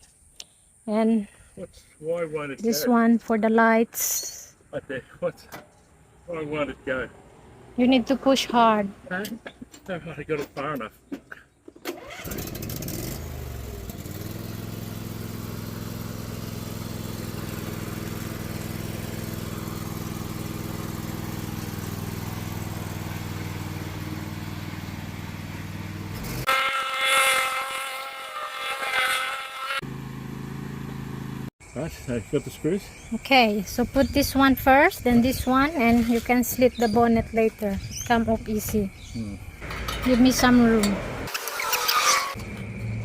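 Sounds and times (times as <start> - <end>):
ride-on mower engine: 11.8 - 31.5, 39.6 - 43.0.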